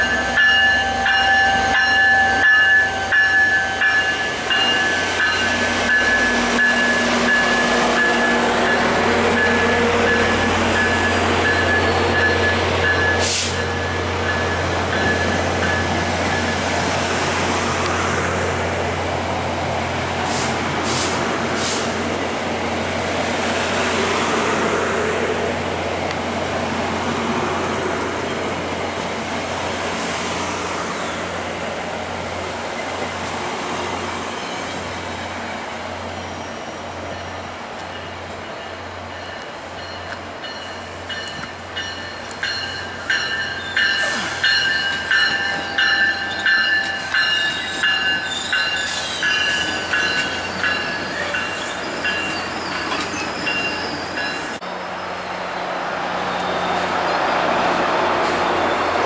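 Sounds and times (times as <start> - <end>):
train wheels squealing: 0.0 - 16.6, 30.8 - 31.3, 32.8 - 55.6, 56.2 - 57.3, 58.2 - 59.0
train wheels rumbling on rails: 0.0 - 59.0.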